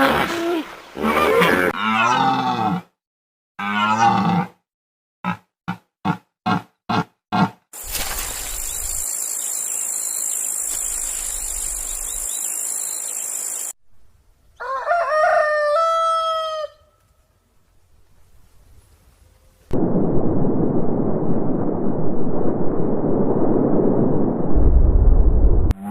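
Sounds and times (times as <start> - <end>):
rooster crowing: 14.6 - 17.0
loud rumbling noise: 19.8 - 25.7.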